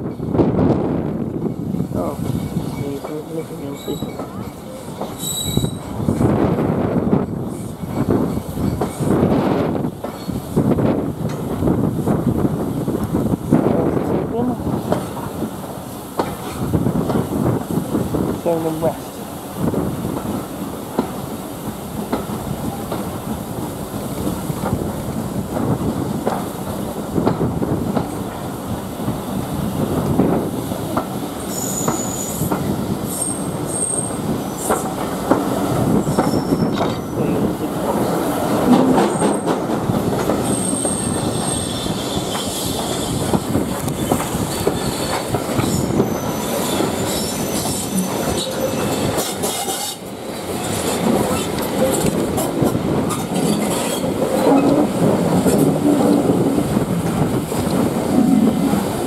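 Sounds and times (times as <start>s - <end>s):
train wheels rumbling on rails: 0.0s - 59.0s
high wheel squeals: 5.2s - 5.9s, 36.0s - 37.0s, 44.8s - 49.0s.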